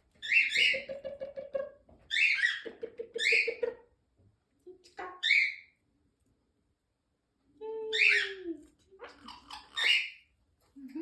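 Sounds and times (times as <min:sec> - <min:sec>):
parakeet calling: 0:00.2 - 0:00.9, 0:09.0 - 0:10.3.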